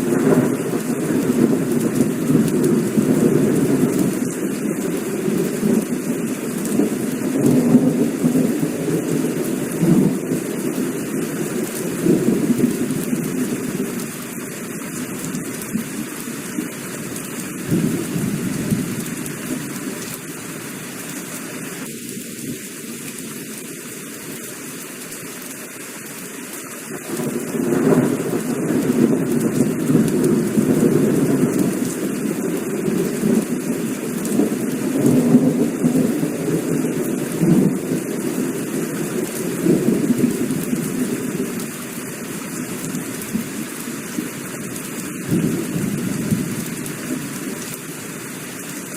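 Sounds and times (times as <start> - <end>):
low rumble of thunder: 0.0 - 10.7, 17.7 - 19.4, 27.0 - 41.7, 45.3 - 46.8
heavy rain falling: 0.0 - 48.9.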